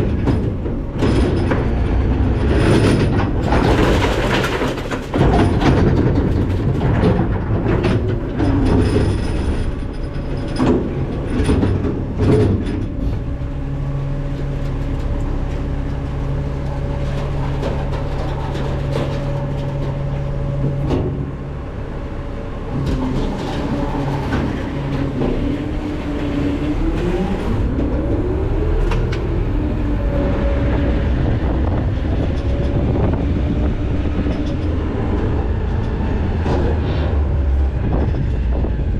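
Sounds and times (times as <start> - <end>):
trash clattering into truck hopper: 0.0 - 13.4, 14.7 - 21.8
hydraulic packer and engine droning: 0.0 - 38.9.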